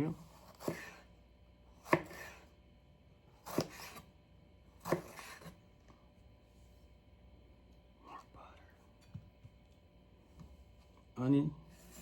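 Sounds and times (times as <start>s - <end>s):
knife cutting on cutting board: 0.1s - 1.1s, 1.8s - 2.5s, 3.4s - 4.1s, 4.8s - 5.6s.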